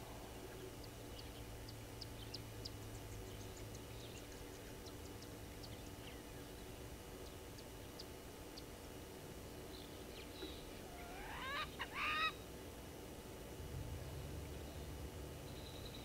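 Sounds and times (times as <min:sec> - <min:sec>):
bird calling loudly: 0:10.9 - 0:12.4.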